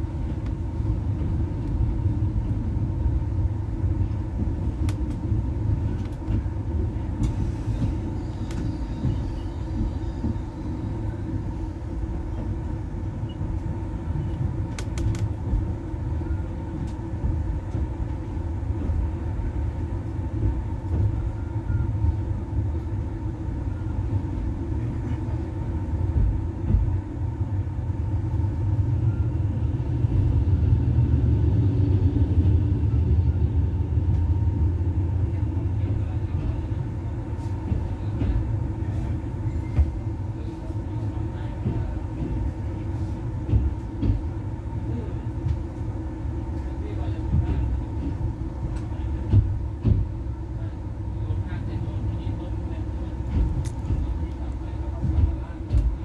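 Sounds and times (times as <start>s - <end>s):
train rumbling on tracks: 0.0s - 56.0s
sharp clicks of train wheels: 4.4s - 6.5s, 14.3s - 15.7s, 53.2s - 56.0s.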